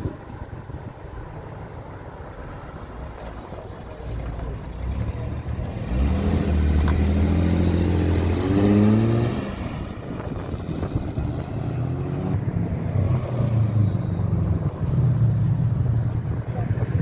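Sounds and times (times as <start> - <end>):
approaching car engine: 2.2 - 17.0
car engine revving: 4.1 - 12.4.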